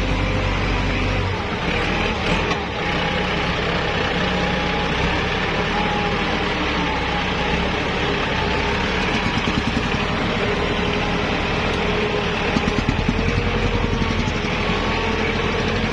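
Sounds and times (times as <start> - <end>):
tractor diesel engine running: 0.0 - 15.9.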